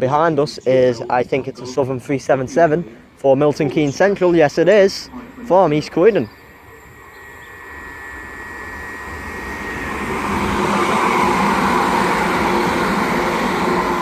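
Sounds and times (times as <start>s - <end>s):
steady low hum: 0.0s - 14.0s
train wheels rumbling on rails: 3.8s - 14.0s.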